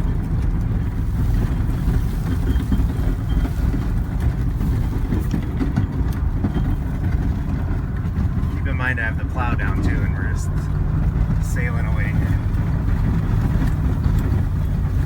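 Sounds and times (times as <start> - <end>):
truck engine under load: 0.0 - 15.0.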